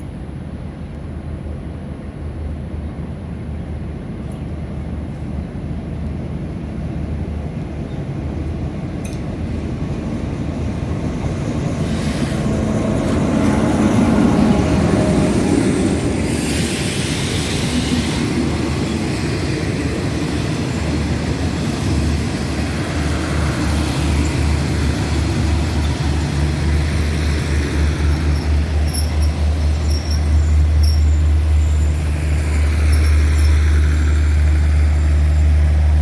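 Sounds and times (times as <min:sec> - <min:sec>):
diesel train engine drone: 0:00.0 - 0:36.0.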